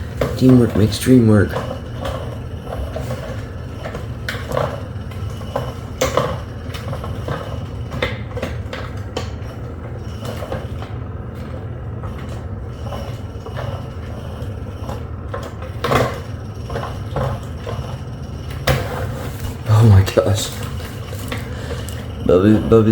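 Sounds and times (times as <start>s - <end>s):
small motor humming: 0.0s - 22.9s.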